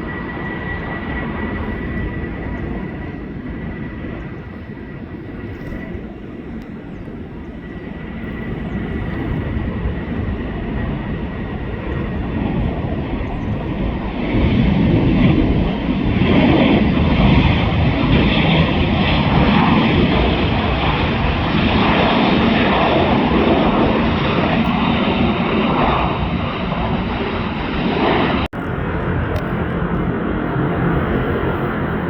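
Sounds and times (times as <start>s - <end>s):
jet engines rumbling at takeoff: 0.0s - 32.0s.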